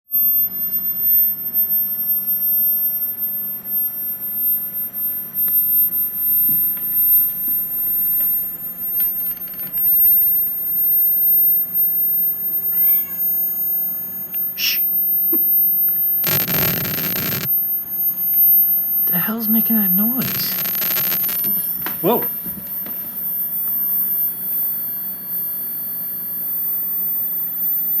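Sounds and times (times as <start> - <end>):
high-pitched electronic whine: 16.2 - 22.9.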